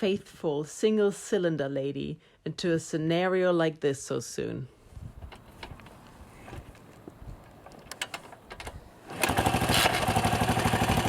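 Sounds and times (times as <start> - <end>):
motorcycle engine running: 9.2 - 11.0.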